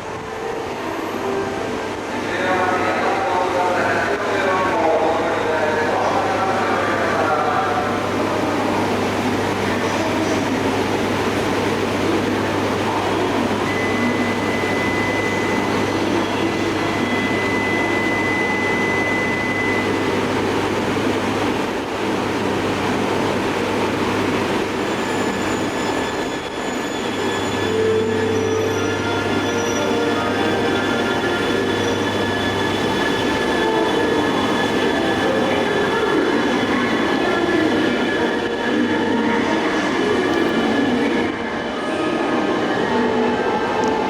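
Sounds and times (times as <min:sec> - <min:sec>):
thin high tone: 0:24.9 - 0:43.8.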